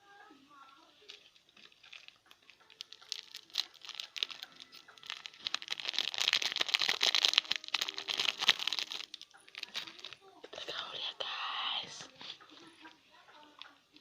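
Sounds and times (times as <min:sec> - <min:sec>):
plastic packaging crinkling: 0:01.0 - 0:11.4.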